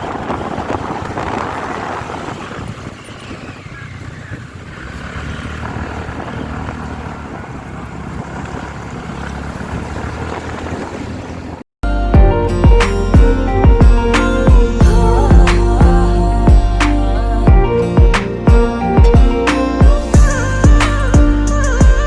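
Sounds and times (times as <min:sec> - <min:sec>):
motorcycle engine running: 0:00.0 - 0:11.6
wind buffeting microphone: 0:00.0 - 0:11.6.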